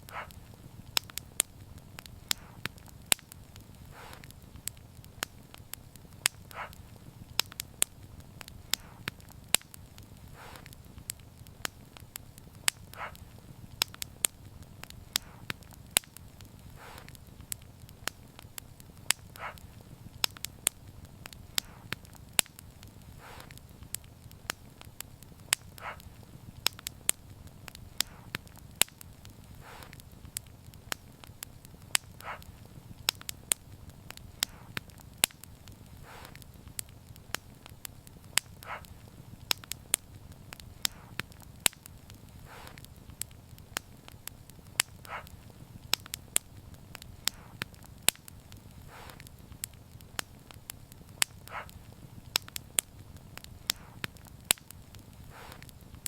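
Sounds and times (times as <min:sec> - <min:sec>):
low rumble of flame: 0:00.0 - 0:56.0
soft hiss: 0:00.0 - 0:56.0
wood fire crackling and popping: 0:00.0 - 0:56.0.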